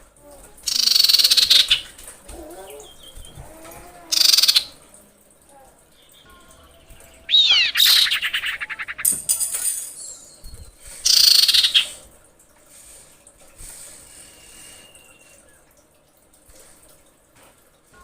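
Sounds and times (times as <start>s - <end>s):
bird whistling and trilling: 7.3s - 9.2s, 10.0s - 12.0s.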